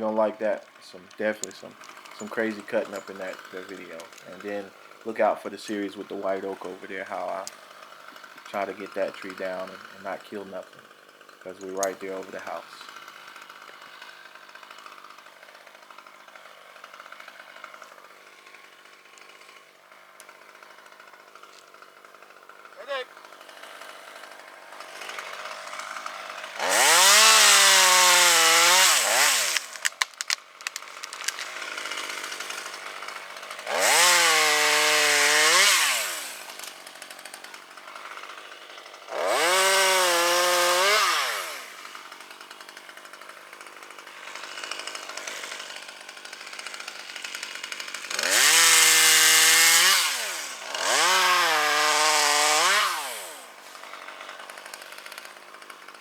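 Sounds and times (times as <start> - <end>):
chainsaw revving and cutting wood: 0.0 - 56.0
sharp clicks: 29.0 - 31.6.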